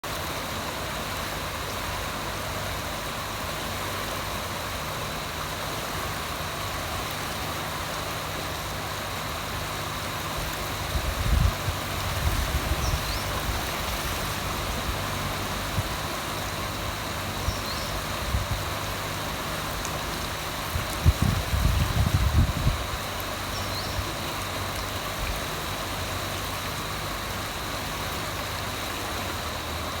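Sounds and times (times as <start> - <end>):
river rushing: 0.0 - 30.0
bird chirps: 17.5 - 18.0.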